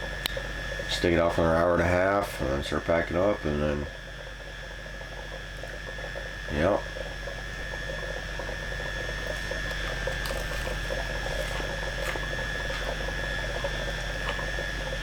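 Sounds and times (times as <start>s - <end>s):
mechanical hum with high whine: 0.0s - 15.0s
faint fine crackle: 3.9s - 15.0s.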